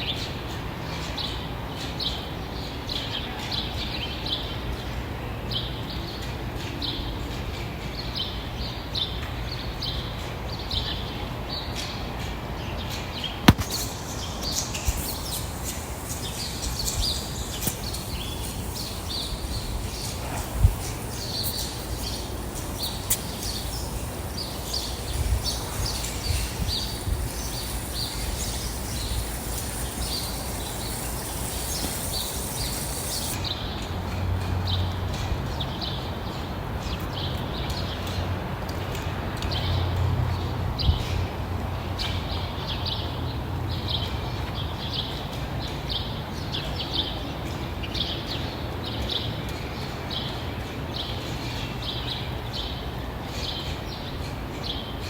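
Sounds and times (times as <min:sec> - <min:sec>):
small birds chirping: 0:13.5 - 0:33.5.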